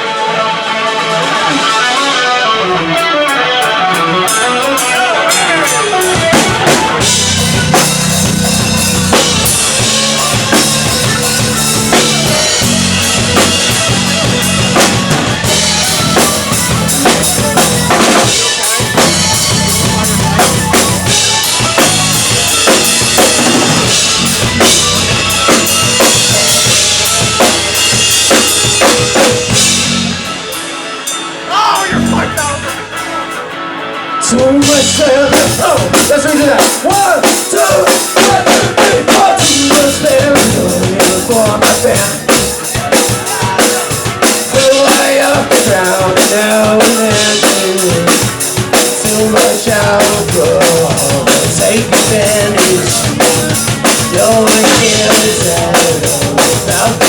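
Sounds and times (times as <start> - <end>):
drum kit: 0.0 - 57.0
rock band playing: 0.0 - 57.0.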